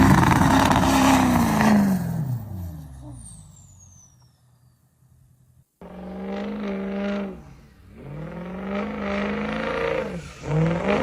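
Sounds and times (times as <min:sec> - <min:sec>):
truck engine accelerating: 0:05.8 - 0:11.0.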